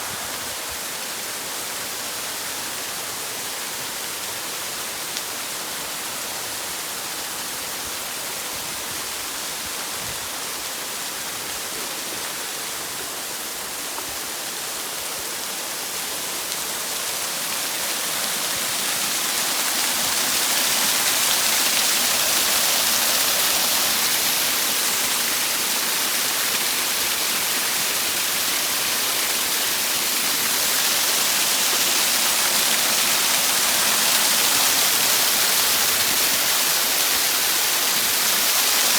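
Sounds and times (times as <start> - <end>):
waterfall rushing: 8.0 - 38.9.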